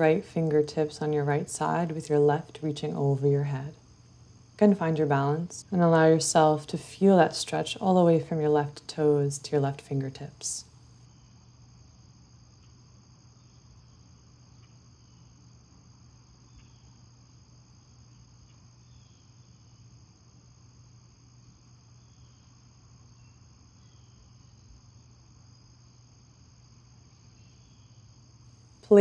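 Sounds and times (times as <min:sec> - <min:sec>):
low steady hum: 0:00.0 - 0:10.8
crickets trilling: 0:00.0 - 0:29.0.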